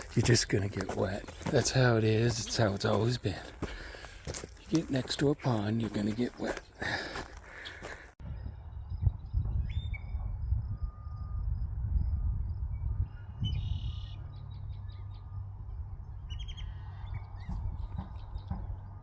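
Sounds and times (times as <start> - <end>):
wild birds chirping: 0.0 - 8.2, 13.0 - 19.0.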